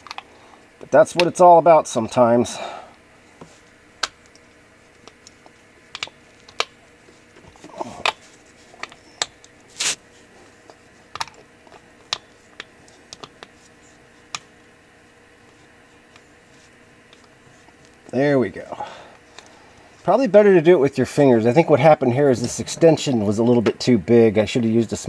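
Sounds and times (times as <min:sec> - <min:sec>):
brief scraping rustles: 0:09.7 - 0:10.3.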